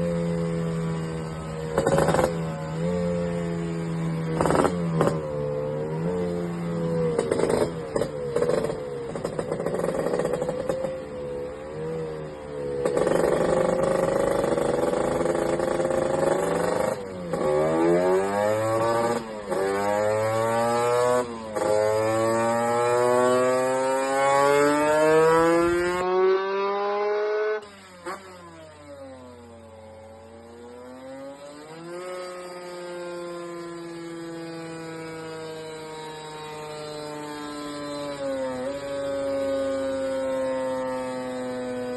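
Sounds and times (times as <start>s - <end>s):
two-stroke engine revving: 0.0s - 11.2s, 11.8s - 41.9s.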